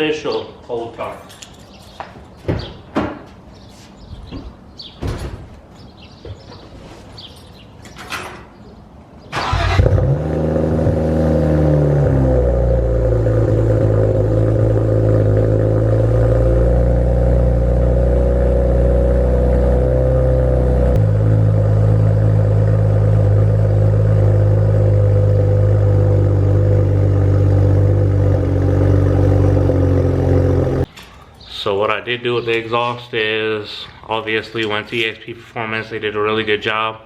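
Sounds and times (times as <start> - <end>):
car engine idling: 9.4 - 30.9.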